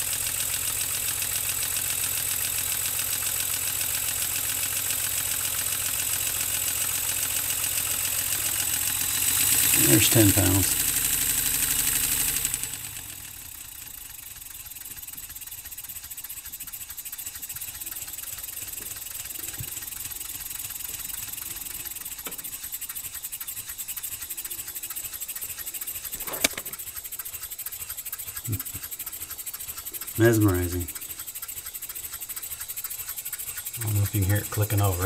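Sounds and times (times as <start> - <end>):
model steam engine ticking: 0.0 - 35.0
sharp click: 24.0 - 34.9.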